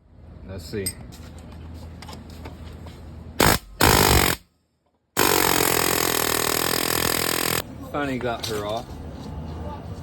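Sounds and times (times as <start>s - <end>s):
pneumatic air hammer: 3.4s - 4.4s, 5.2s - 7.6s.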